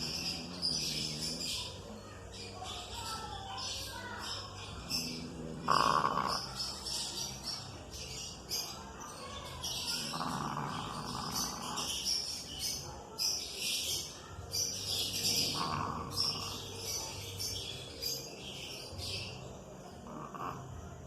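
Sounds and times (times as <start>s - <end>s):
dog snoring: 0.0s - 3.0s, 4.2s - 7.6s, 9.9s - 12.5s, 15.0s - 17.3s, 20.0s - 21.0s
birds chirping: 0.0s - 21.0s.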